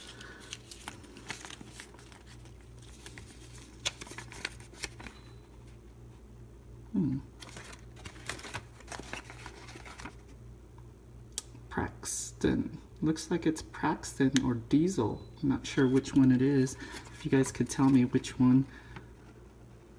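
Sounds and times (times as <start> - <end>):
wrapper crinkling and tearing: 0.0 - 5.1, 7.4 - 10.3
steady low hum: 0.0 - 19.9.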